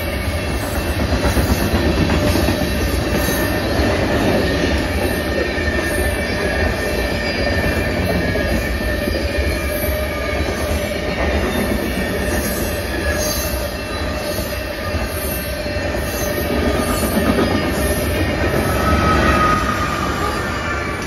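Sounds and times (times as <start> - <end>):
freight train cars rumbling past: 0.0 - 21.0.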